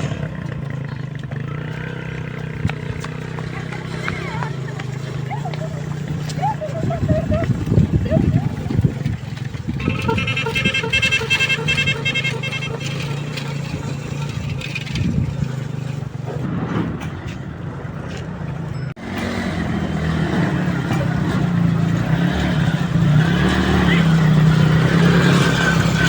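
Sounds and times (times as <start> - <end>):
motorcycle engine running: 0.0 - 16.4.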